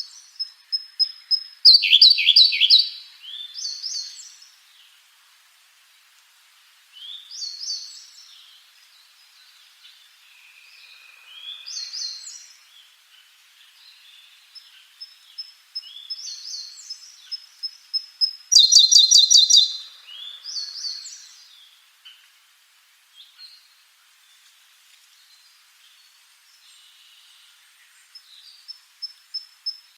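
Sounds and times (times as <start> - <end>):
soft bird chirps: 0.0 - 4.4, 7.0 - 22.3
songbirds singing: 0.0 - 5.1, 6.9 - 22.3, 25.2 - 29.9
fast bird trill: 1.0 - 2.9, 18.0 - 19.8.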